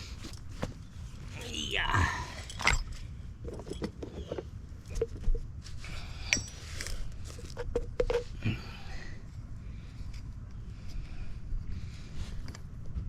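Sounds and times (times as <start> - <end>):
metal fittings clinking: 2.4 - 4.4.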